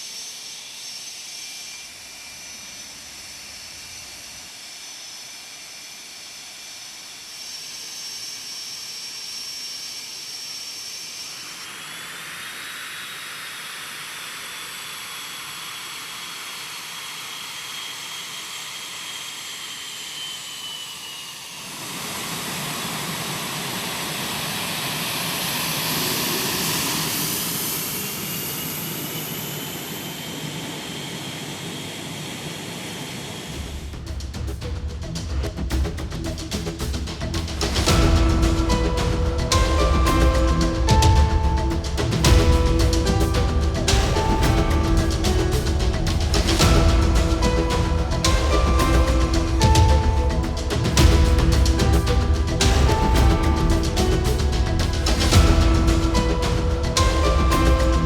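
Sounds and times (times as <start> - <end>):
jet engines whining: 9.6 - 34.8, 35.4 - 58.0
deep rumble: 37.2 - 58.0.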